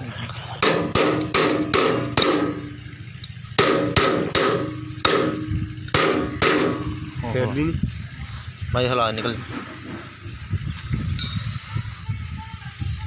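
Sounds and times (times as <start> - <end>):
hammer striking steel rim: 0.6 - 2.8, 3.6 - 7.0.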